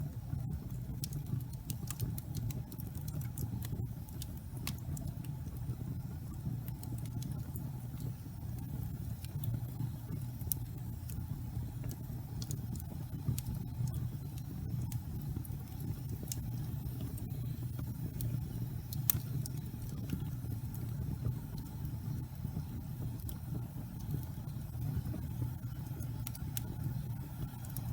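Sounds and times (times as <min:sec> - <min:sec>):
wood fire crackling and popping: 0:00.0 - 0:27.9.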